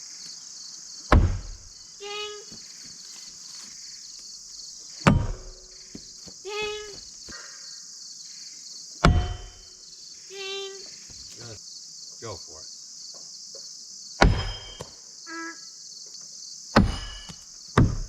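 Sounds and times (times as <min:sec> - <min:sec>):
insects buzzing: 0:00.0 - 0:18.0
blades thunking into wooden target: 0:01.1 - 0:01.6, 0:05.0 - 0:05.6, 0:09.0 - 0:09.6, 0:14.2 - 0:14.9, 0:16.8 - 0:18.0.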